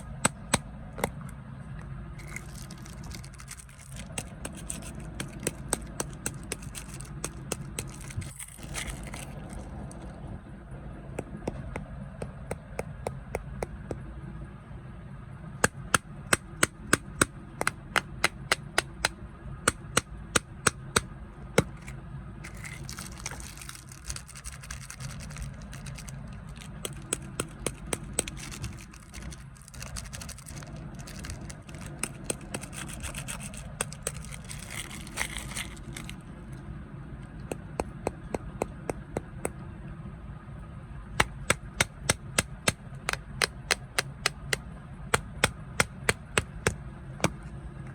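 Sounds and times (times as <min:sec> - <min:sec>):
plastic wrapper crinkling: 0:02.2 - 0:10.1, 0:22.5 - 0:36.3.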